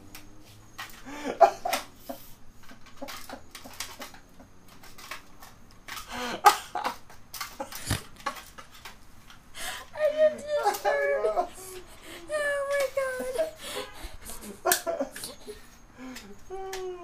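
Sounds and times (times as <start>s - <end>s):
man laughing: 1.1s - 1.9s, 10.6s - 12.3s, 14.3s - 15.6s.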